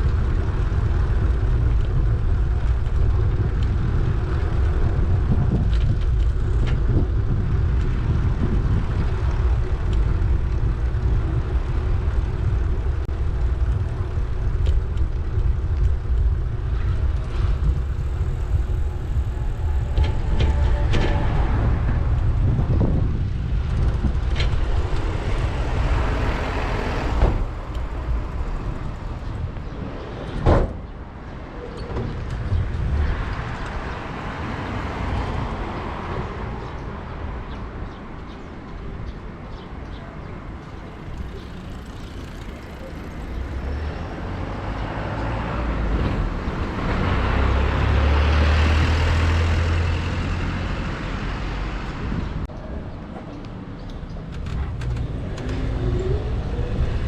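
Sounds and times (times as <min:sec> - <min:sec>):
vehicle with low drone passing: 0:00.0 - 0:29.9, 0:54.4 - 0:57.0
vehicles passing: 0:00.0 - 0:57.0.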